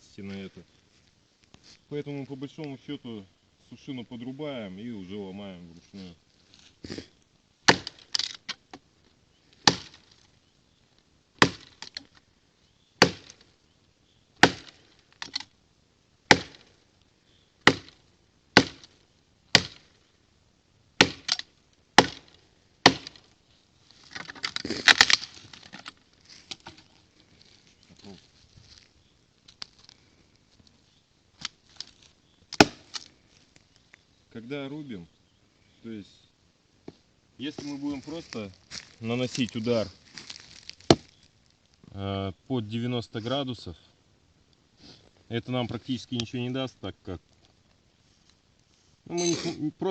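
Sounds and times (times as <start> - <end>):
knife chopping into dead tree: 7.7 - 8.3, 9.6 - 10.0, 11.4 - 11.9, 13.0 - 13.4, 14.4 - 14.8, 16.3 - 16.7, 17.7 - 18.0, 18.6 - 18.9, 19.5 - 19.9, 21.0 - 21.4, 22.0 - 23.2, 32.6 - 33.1
wood cracking and breaking: 24.1 - 26.9.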